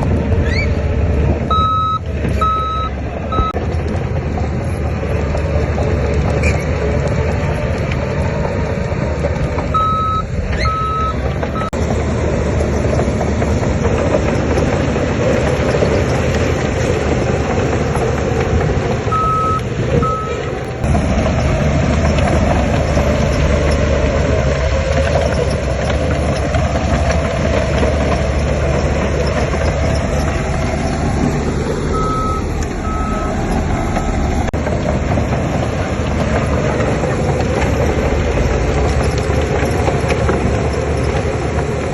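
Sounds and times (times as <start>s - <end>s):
heavy machinery engine running: 0.0s - 41.9s
reversing alarm beeps: 1.5s - 3.6s, 9.8s - 11.8s, 19.1s - 20.4s, 31.9s - 33.4s.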